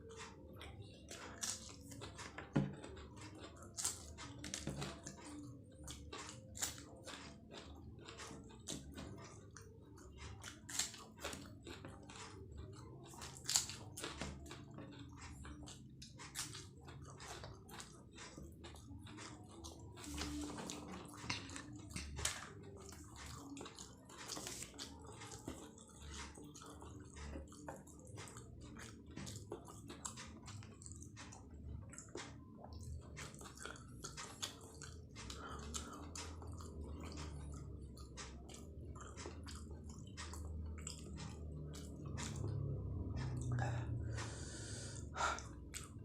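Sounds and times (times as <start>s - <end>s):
person chewing food: 0.0s - 46.0s.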